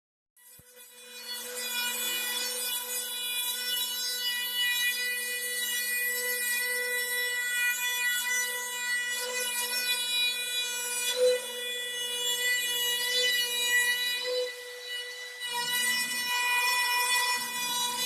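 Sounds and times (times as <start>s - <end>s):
cnc machine whining: 14.1s - 18.0s.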